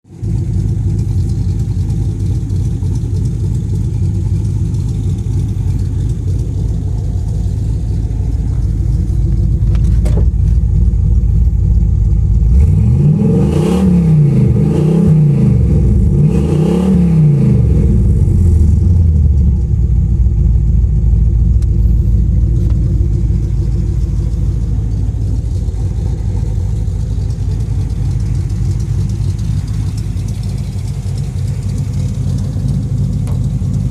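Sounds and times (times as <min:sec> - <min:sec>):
car engine idling: 0:00.0 - 0:33.9
engine revving: 0:12.3 - 0:20.4.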